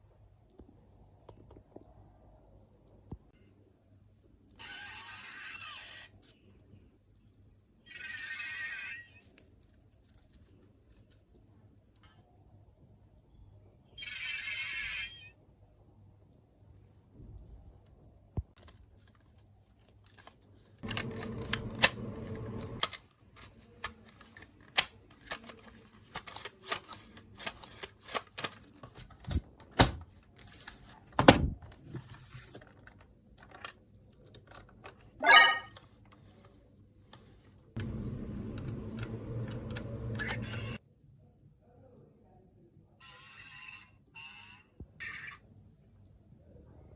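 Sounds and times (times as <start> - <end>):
plastic toy parts clicking: 22.8 - 30.0, 32.9 - 35.0
short electronic call: 35.2 - 35.7.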